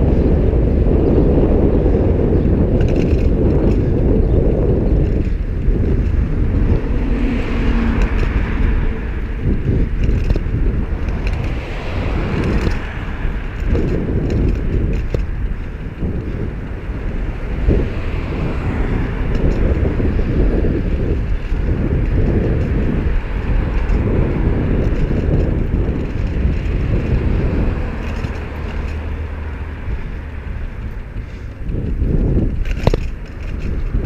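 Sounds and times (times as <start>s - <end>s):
wind buffeting microphone: 0.0s - 34.0s
road traffic hiss: 27.2s - 31.7s.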